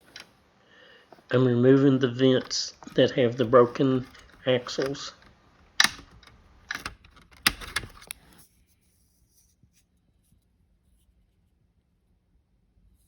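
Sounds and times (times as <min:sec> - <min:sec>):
hard plastic clicks and knocks: 0:02.1 - 0:08.4.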